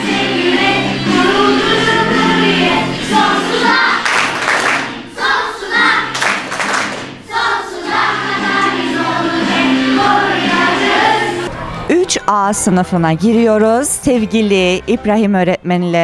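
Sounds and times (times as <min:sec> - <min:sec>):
children singing in chorus: 0:00.0 - 0:06.6, 0:07.2 - 0:11.5.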